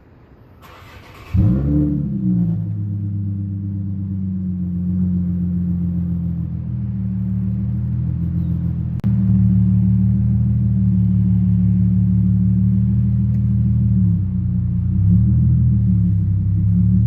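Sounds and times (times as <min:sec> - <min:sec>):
car engine idling deeply: 0:01.2 - 0:17.0.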